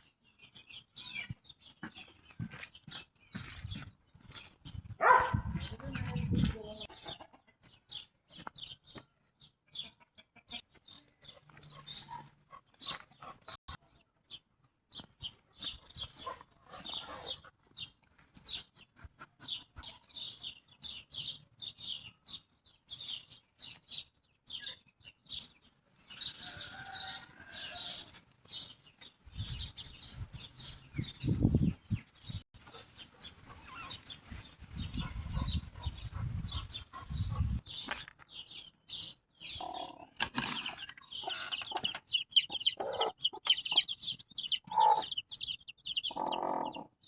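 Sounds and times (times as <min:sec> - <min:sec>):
chickens calling: 0:05.0 - 0:08.5, 0:09.6 - 0:13.6, 0:32.6 - 0:47.0.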